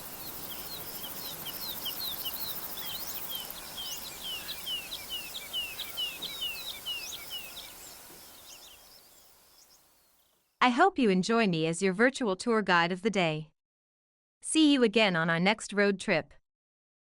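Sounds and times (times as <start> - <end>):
outdoor background hiss: 0.0 - 10.5
songbirds chirping: 0.0 - 10.5.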